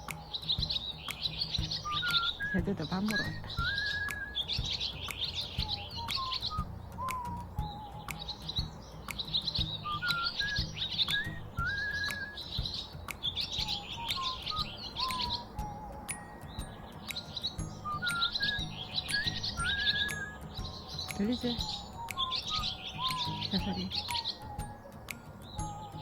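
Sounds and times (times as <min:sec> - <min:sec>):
small birds chirping: 0:00.0 - 0:26.0
whistled bird song: 0:00.0 - 0:26.0.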